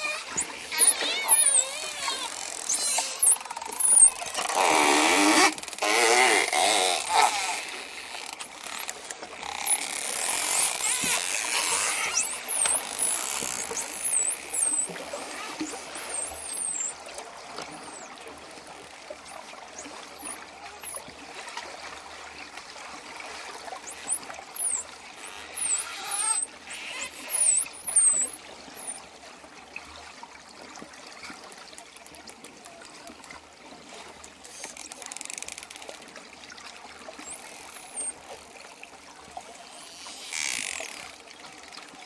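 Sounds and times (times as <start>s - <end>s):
dolphin squawk-like calls: 0.0s - 7.9s, 10.5s - 17.0s, 24.0s - 29.0s
dolphins whistling: 0.0s - 18.1s, 19.8s - 21.0s, 23.9s - 29.0s, 37.2s - 38.2s.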